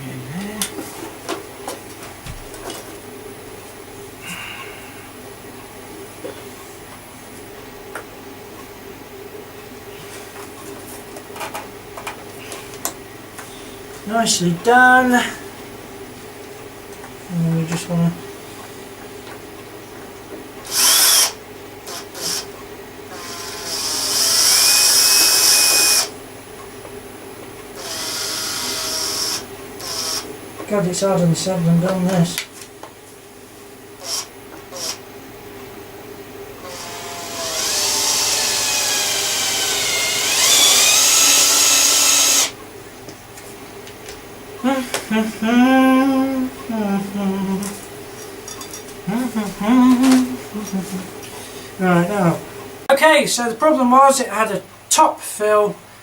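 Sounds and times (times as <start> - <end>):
power drill whining: 20.6 - 22.5, 23.1 - 26.1, 27.8 - 30.2, 34.0 - 35.0, 36.6 - 42.6.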